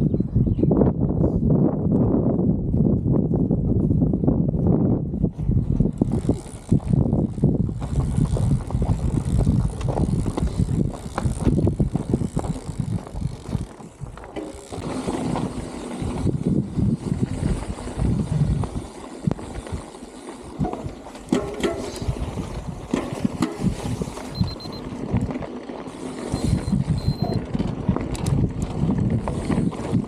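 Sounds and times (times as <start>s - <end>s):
wind rumble on microphone: 0.0s - 30.0s
bicycle rattling and knocking: 5.3s - 30.0s.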